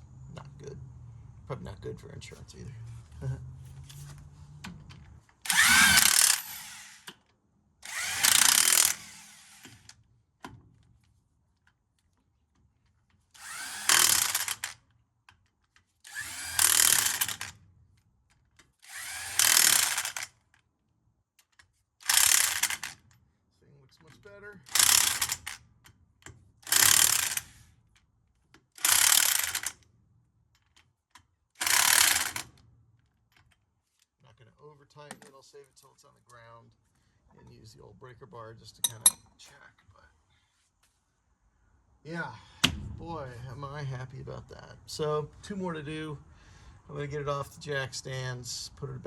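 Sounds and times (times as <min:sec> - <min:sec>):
power tool spinning lug nuts: 0:05.4 - 0:07.2, 0:07.8 - 0:09.9, 0:13.3 - 0:14.8, 0:16.1 - 0:17.6, 0:18.8 - 0:20.3, 0:22.0 - 0:23.0, 0:24.7 - 0:25.6, 0:26.6 - 0:27.6, 0:28.8 - 0:29.8, 0:31.6 - 0:32.6
ratchet wrench clicking: 0:05.5 - 0:07.2, 0:07.9 - 0:09.9, 0:13.4 - 0:14.8, 0:16.1 - 0:17.6, 0:18.9 - 0:20.3, 0:21.5 - 0:23.0, 0:24.7 - 0:25.6, 0:26.6 - 0:27.6, 0:28.8 - 0:29.8, 0:30.6 - 0:32.5.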